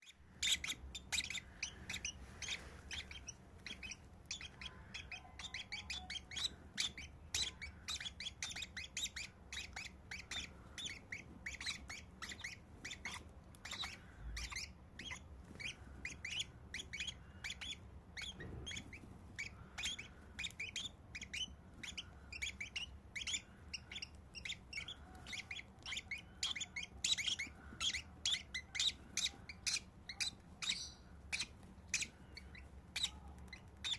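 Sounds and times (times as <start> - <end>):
nestlings chirping begging calls: 0.0 - 33.9.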